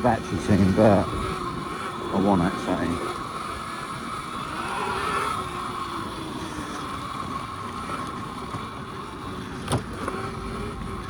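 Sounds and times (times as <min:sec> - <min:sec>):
electric motor whining: 0:00.0 - 0:11.0
wind buffeting microphone: 0:00.0 - 0:11.0.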